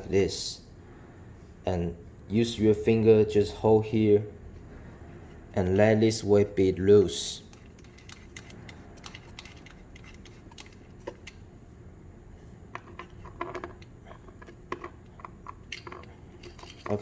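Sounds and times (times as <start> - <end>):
light clicks and taps of parts: 7.4 - 11.4.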